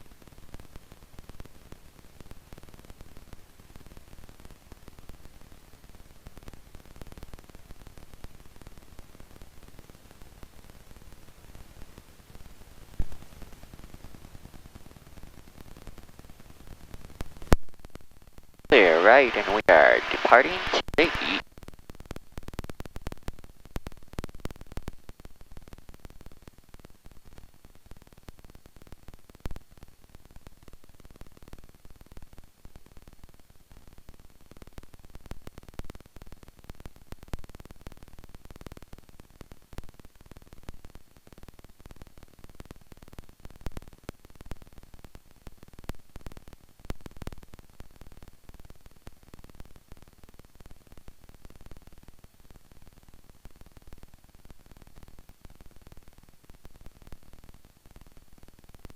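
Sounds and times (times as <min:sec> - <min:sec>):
crackling static: 0:00.0 - 0:58.9
electrical hum: 0:18.7 - 0:21.4.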